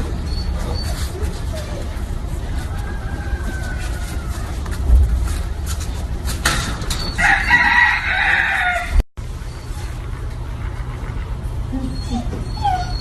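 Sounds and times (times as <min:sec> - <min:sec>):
rooster crowing: 0:02.4 - 0:04.8, 0:07.2 - 0:09.0
low rumble: 0:04.7 - 0:07.0.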